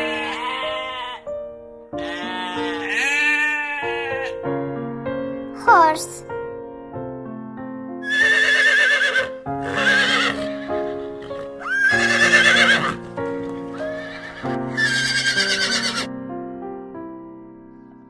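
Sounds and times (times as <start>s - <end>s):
horse whinnying: 0.0s - 1.3s, 2.0s - 4.4s, 8.0s - 16.1s
light keyboard music: 0.0s - 18.0s.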